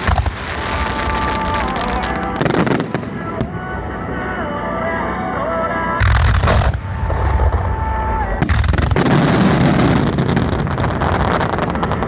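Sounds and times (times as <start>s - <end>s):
fireworks crackling: 0.0s - 3.7s, 6.0s - 12.0s
firework bang: 6.0s - 7.7s, 8.4s - 12.0s.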